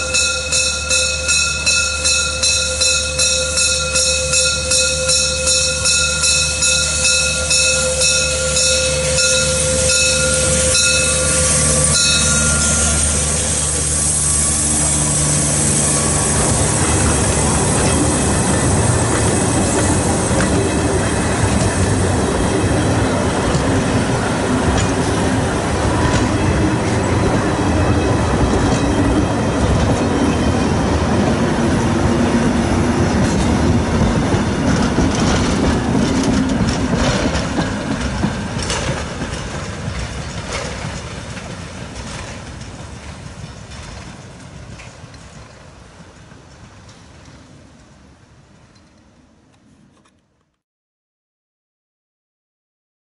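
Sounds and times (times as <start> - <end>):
steam train passing: 0.0 - 50.0
wheels clicking over rail joints: 16.4 - 50.2.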